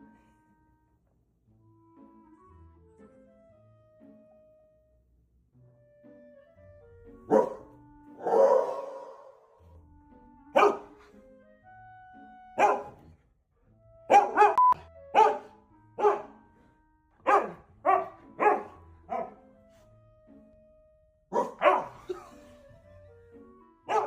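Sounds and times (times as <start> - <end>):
quiet background music: 0.0 - 24.0
dogs barking: 7.2 - 9.5, 10.5 - 11.2, 12.6 - 13.0, 14.1 - 16.4, 17.2 - 19.6, 21.3 - 22.5.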